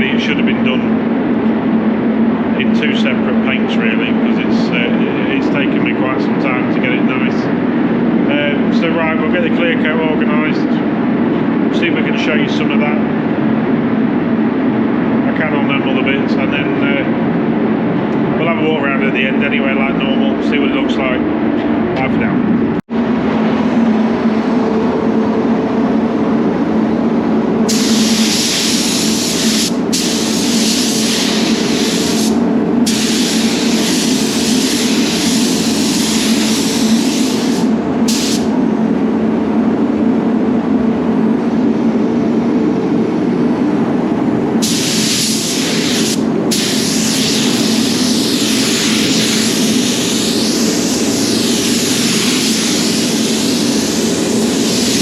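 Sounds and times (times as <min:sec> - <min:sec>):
extraction fans humming: 0:00.0 - 0:55.0
spray gun hissing: 0:27.7 - 0:38.5, 0:44.6 - 0:55.0.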